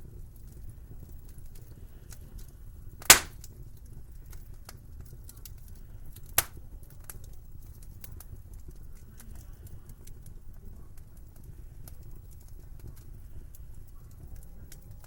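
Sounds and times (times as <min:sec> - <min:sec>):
low steady rumble of fire: 0:00.0 - 0:15.0
wood fire crackling: 0:00.0 - 0:15.0
sharp pops of fire: 0:03.0 - 0:08.3.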